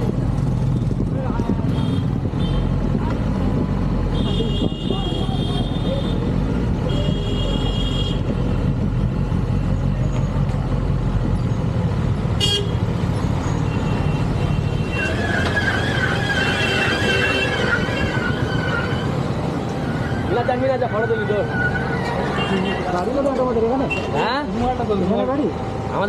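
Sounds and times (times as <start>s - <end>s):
vehicle horn: 4.2s - 6.2s, 6.8s - 8.3s, 12.4s - 12.8s.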